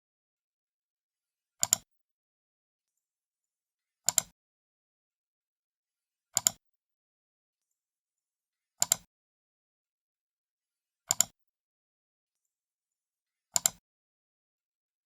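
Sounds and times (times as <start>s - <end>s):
computer mouse button clicks: 1.6s - 1.8s, 4.1s - 4.3s, 6.4s - 6.6s, 8.8s - 9.1s, 11.1s - 11.3s, 13.6s - 13.8s.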